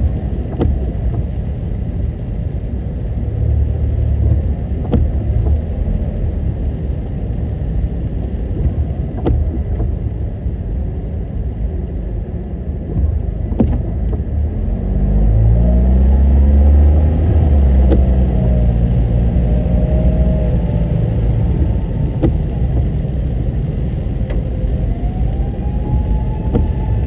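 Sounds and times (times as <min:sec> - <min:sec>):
car engine and road noise: 0:00.0 - 0:27.0
engine revving: 0:14.4 - 0:27.0.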